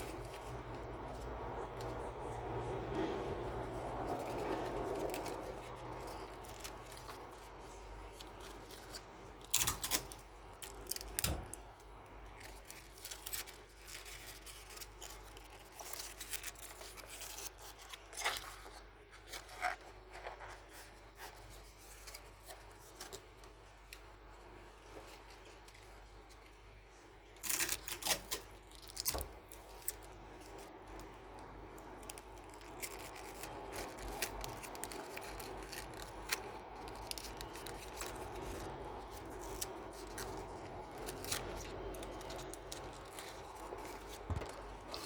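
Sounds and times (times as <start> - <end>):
scissors cutting paper: 0.0 - 11.6, 31.9 - 45.0
paper rustling: 0.0 - 26.7, 27.4 - 45.0.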